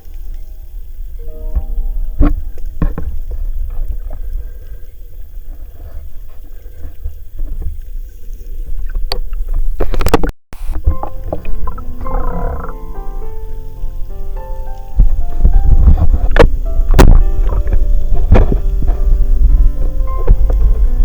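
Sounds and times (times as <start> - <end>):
sharp underwater clicks: 0.0 - 12.8
underwater low rumble: 0.0 - 21.0.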